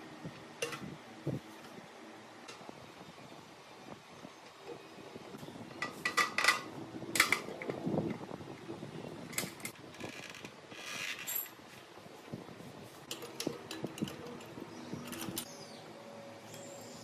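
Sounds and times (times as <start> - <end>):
metal tools clinking: 11.0 - 11.6.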